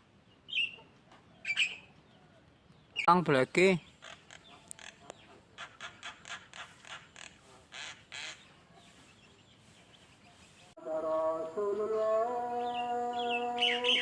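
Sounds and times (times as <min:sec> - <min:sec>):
songbird harsh chattering: 0:02.9 - 0:08.6.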